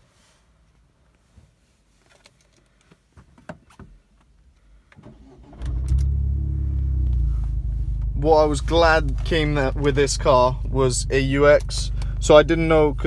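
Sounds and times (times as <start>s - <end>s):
car engine cranking: 5.0s - 13.0s
car engine idling: 5.2s - 13.0s.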